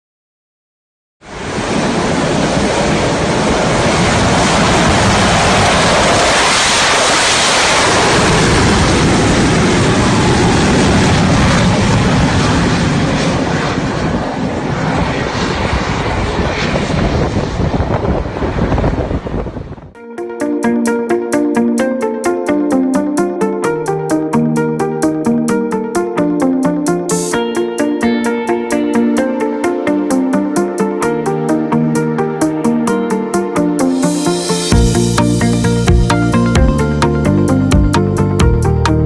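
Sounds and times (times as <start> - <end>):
jet engine rushing: 1.3 - 20.0, 26.6 - 38.8.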